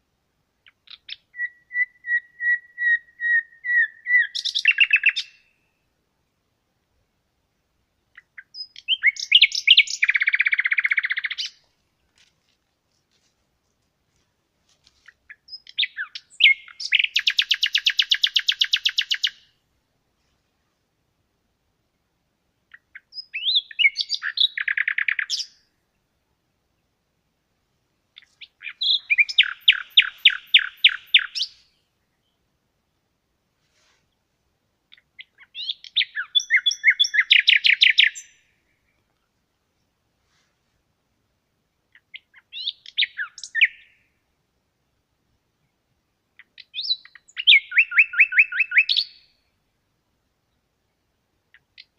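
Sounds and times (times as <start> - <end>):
songbird singing with trill: 0.6 - 5.8, 8.1 - 11.6, 15.1 - 19.6, 22.7 - 25.7, 28.2 - 32.4, 34.9 - 39.0, 41.9 - 44.1, 46.4 - 49.5.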